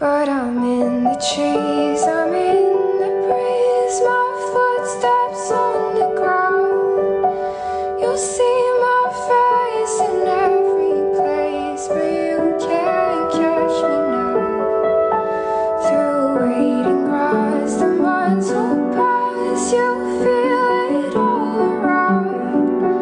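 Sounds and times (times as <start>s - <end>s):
slow song with high voice: 0.0s - 23.0s.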